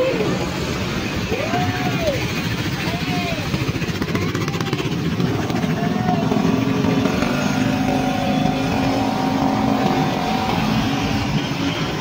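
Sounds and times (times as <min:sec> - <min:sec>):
scooter engines running: 0:00.0 - 0:12.0.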